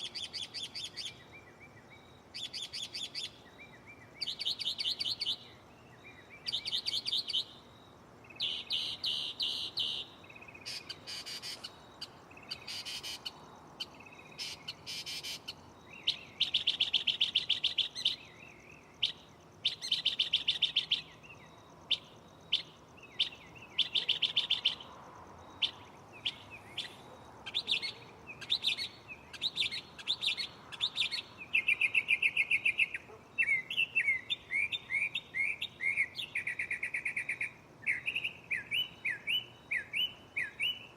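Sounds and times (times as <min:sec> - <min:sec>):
mockingbird singing: 0:08.2 - 0:24.9, 0:25.5 - 0:40.9.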